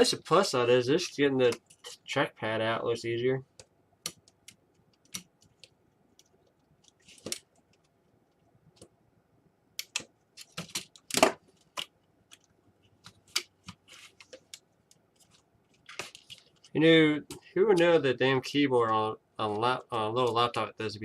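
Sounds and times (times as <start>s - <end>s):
plastic laptop parts clicking: 9.8s - 16.7s.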